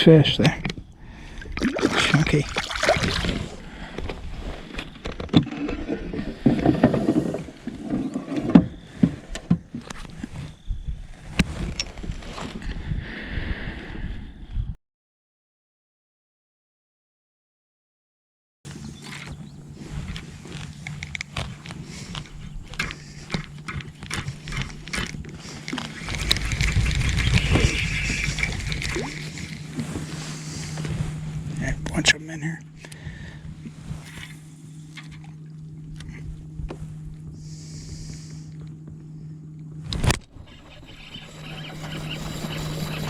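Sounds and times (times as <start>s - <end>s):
knocks and thumps against hull: 5.0s - 10.0s
steady low hum: 18.7s - 43.0s
rustling: 19.2s - 31.5s
rushing noise: 25.8s - 30.9s.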